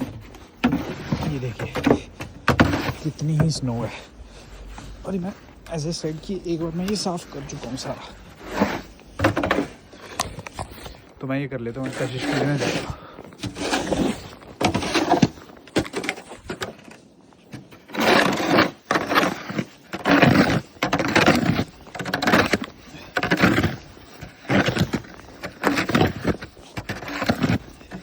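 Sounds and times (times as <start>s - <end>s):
snow shovel scraping snow: 0.0s - 1.9s, 2.5s - 4.0s, 4.8s - 11.0s, 11.6s - 16.7s, 17.6s - 28.0s.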